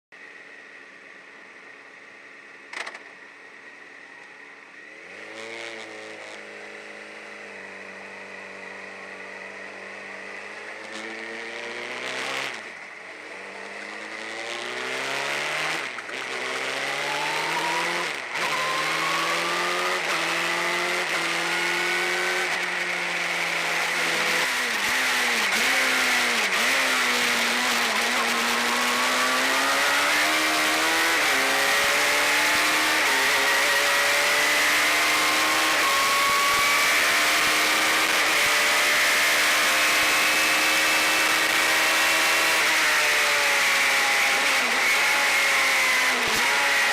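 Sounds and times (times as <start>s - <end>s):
race car engine accelerating: 13.6s - 46.9s.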